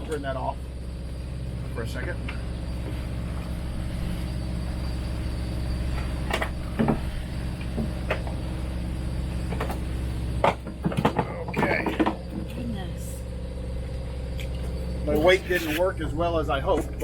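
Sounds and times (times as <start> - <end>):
engine droning: 0.0 - 17.0
knocks and clunks of gear: 5.9 - 8.5, 9.4 - 12.6.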